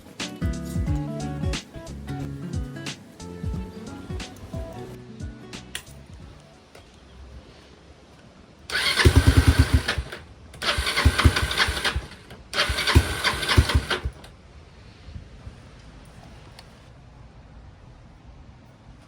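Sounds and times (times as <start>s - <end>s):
engine starter cranking: 8.7s - 14.3s.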